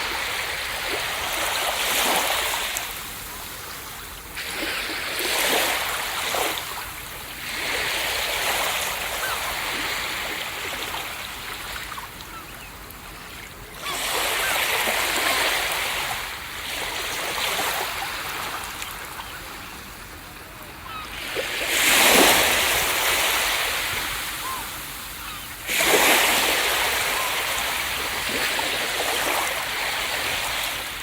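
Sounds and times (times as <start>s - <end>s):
ocean waves breaking: 0.0s - 31.0s.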